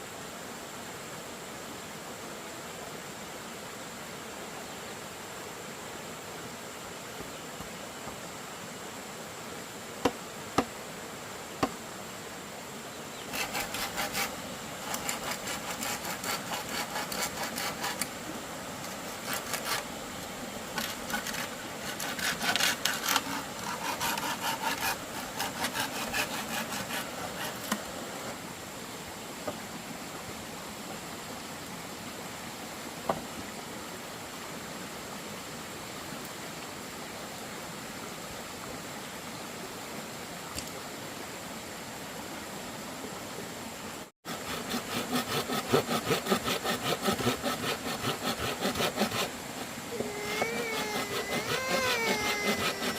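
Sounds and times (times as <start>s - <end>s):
background hiss: 0.0s - 52.9s
hand saw cutting bamboo: 13.3s - 18.2s, 18.8s - 19.9s, 20.7s - 28.4s, 44.3s - 52.9s.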